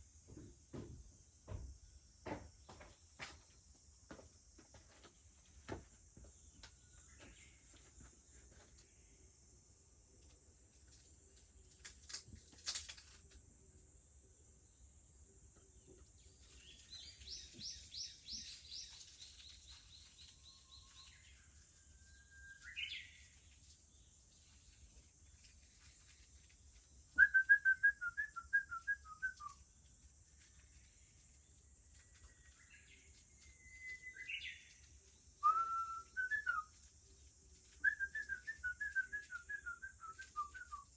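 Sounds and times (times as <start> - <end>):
cicadas droning: 0.0 - 40.9
warbler singing whistled phrases: 16.2 - 29.6, 30.3 - 40.9.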